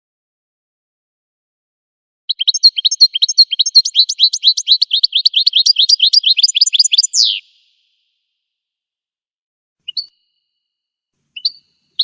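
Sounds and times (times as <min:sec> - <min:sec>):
goldfinch song: 0:02.3 - 0:08.0, 0:09.8 - 0:12.0.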